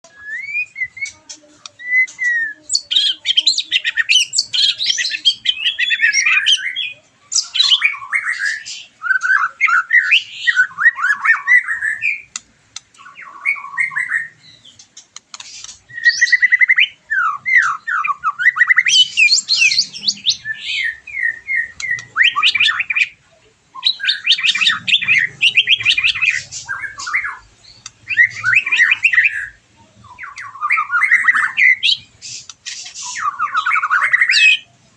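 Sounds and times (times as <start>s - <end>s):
bird singing whistles: 0.1s - 1.2s, 1.8s - 12.4s, 15.6s - 23.1s, 23.8s - 34.7s.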